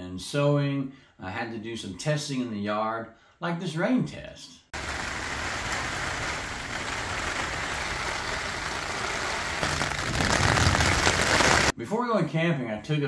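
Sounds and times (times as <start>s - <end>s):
rain on wet pavement: 4.8s - 11.7s
rain on plastic tarp: 4.8s - 11.8s.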